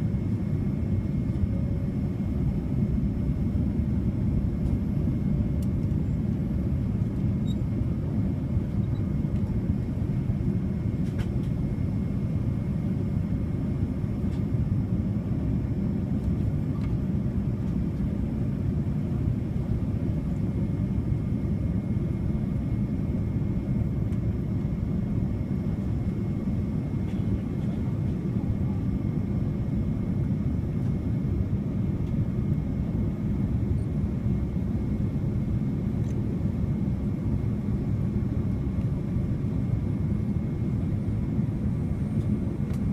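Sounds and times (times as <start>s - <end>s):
faint high whine: 0.0s - 15.5s
airliner cabin rumble: 0.0s - 42.9s.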